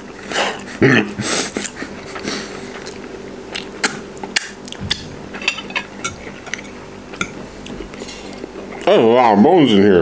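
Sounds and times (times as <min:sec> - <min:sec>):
faint steady hum: 0:00.0 - 0:10.0
chewing crunchy chicken bones: 0:01.4 - 0:09.0
fork scraping a plate: 0:05.4 - 0:08.4.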